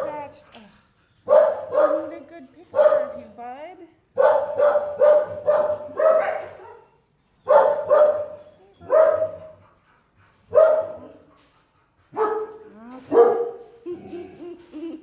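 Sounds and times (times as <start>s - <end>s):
dog barking: 1.3s - 3.2s, 4.2s - 9.6s, 10.5s - 11.3s, 12.1s - 13.8s.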